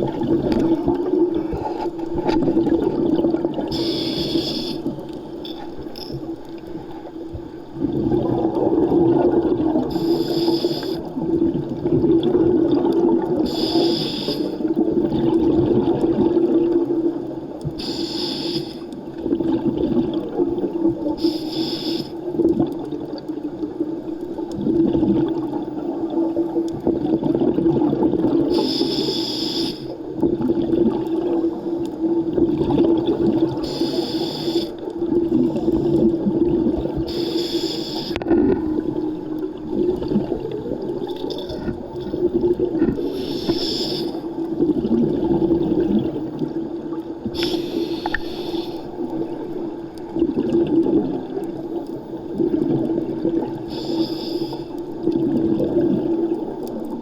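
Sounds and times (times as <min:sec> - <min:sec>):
exhaled bubbles hissing: 0:00.0 - 0:57.0
diver breathing through regulator: 0:03.7 - 0:05.0, 0:09.8 - 0:11.2, 0:13.4 - 0:14.8, 0:17.8 - 0:18.9, 0:21.2 - 0:22.2, 0:28.5 - 0:30.0, 0:33.6 - 0:34.9, 0:37.0 - 0:38.5, 0:42.9 - 0:44.4, 0:47.4 - 0:49.0, 0:53.7 - 0:54.8.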